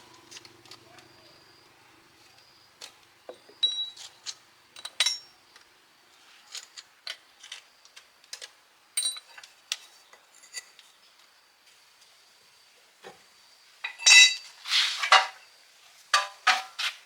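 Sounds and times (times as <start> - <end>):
light metallic clinks: 3.6 - 5.4, 9.0 - 9.5.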